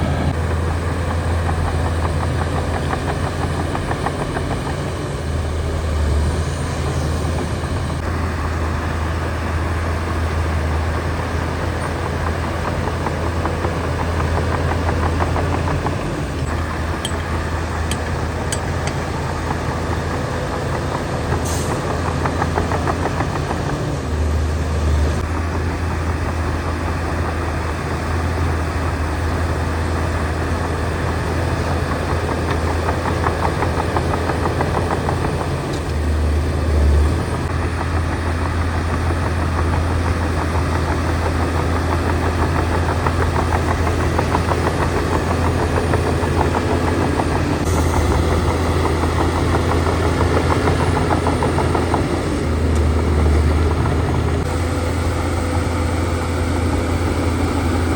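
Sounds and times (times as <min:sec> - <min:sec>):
diesel engine droning: 0:00.0 - 0:57.9.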